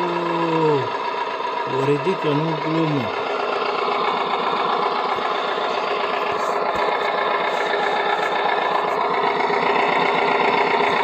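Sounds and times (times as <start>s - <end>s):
toy crane motor whirring: 3.2s - 11.0s.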